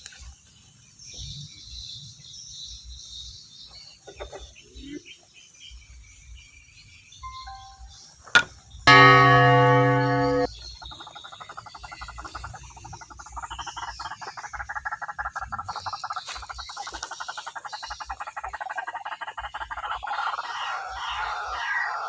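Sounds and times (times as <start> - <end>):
loud buzzing tone: 8.9 - 10.5.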